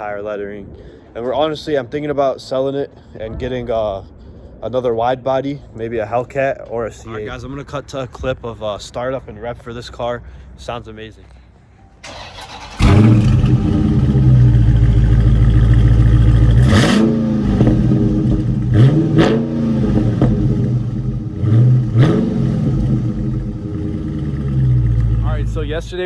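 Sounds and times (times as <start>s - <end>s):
car engine idling: 12.0s - 26.0s
car engine starting: 12.0s - 26.0s
car engine throttle blips: 12.0s - 26.0s.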